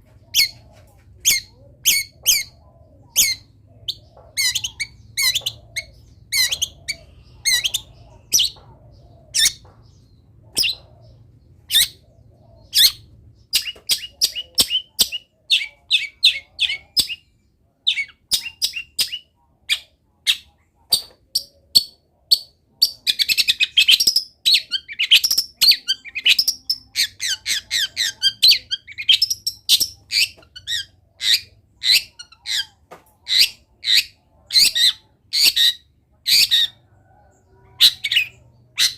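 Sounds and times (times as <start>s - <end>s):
bird chirps and trills: 1.2s - 17.3s.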